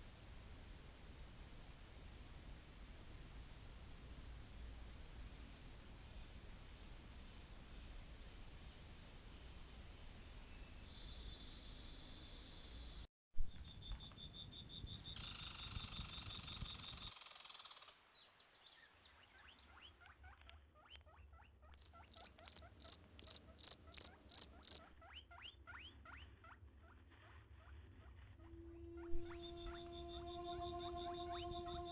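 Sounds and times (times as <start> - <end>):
insect buzz: 14.9 - 18.0, 21.8 - 24.9, 28.4 - 31.9.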